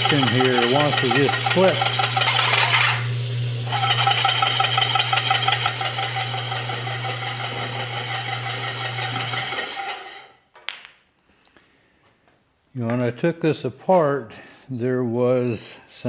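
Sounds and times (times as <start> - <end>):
electric motor hum and grinding: 0.0 - 10.3.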